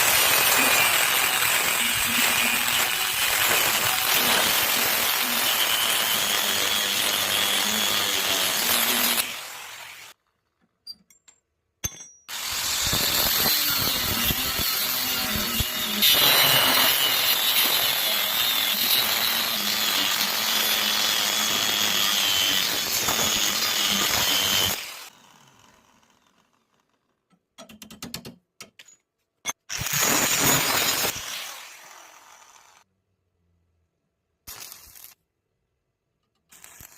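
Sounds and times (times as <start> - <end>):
welding arc crackling: 34.5 - 35.2, 36.6 - 36.9.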